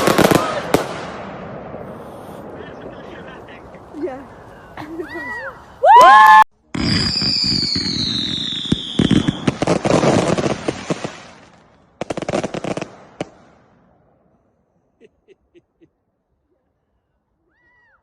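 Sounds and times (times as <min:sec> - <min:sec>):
fireworks crackling bangs: 0:00.0 - 0:04.3, 0:06.8 - 0:13.8.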